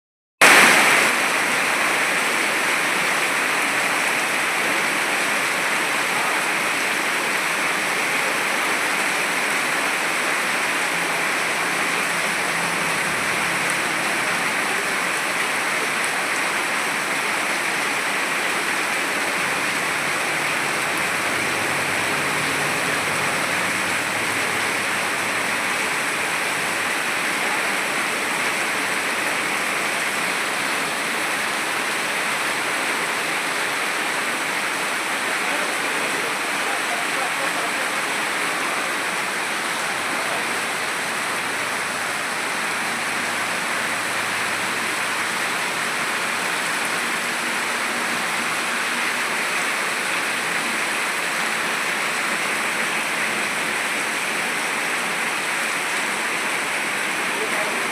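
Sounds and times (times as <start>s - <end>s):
torrential rain pouring: 0.4s - 57.9s.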